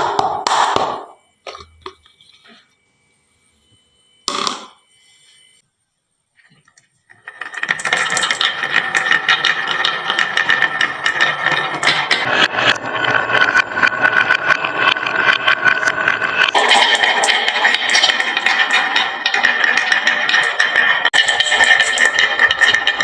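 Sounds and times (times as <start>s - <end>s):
marbles rattling down wooden run: 7.2s - 12.8s, 13.9s - 23.0s.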